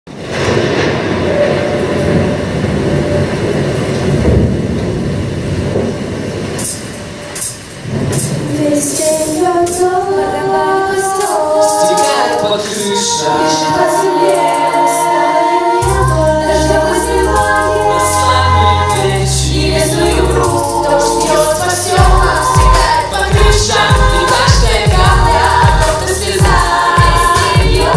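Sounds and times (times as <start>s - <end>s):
steady noisy rush: 0.1s - 27.9s
backing track: 6.6s - 27.9s
children singing pop song: 8.5s - 27.9s
bass line: 15.8s - 27.9s.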